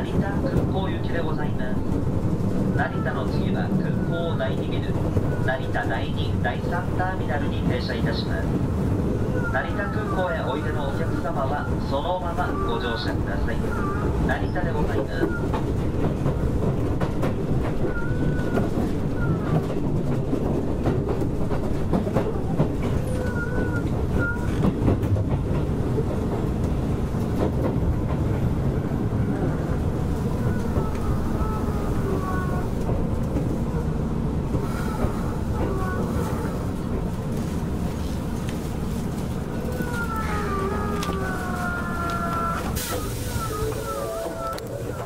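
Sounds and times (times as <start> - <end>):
train rumble: 0.0 - 45.0
wheels clicking over rail joints: 34.5 - 45.0.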